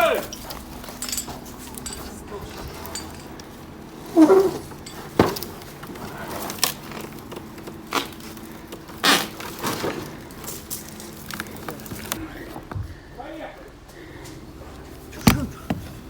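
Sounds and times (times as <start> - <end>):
sharp knocks and clanks: 15.2 - 16.0.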